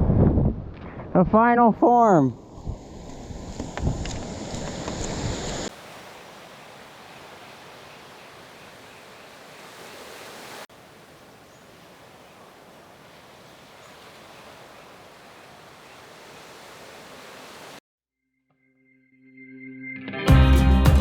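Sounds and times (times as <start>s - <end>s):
wind noise: 0.0s - 1.4s, 2.3s - 5.7s
ocean surf: 2.5s - 17.8s.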